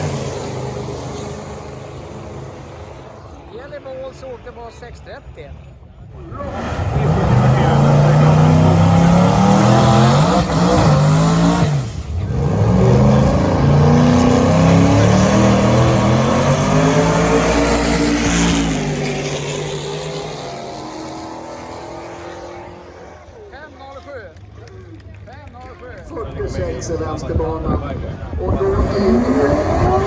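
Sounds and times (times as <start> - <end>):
race car engine accelerating: 0.0 - 3.6, 6.2 - 23.6, 26.7 - 30.0.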